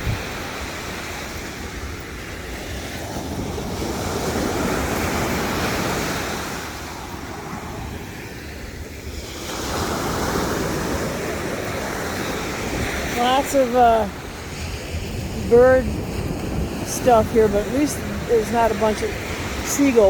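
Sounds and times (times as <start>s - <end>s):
ocean surf breaking: 0.0s - 20.0s
wind rumbling on microphone: 0.0s - 20.0s.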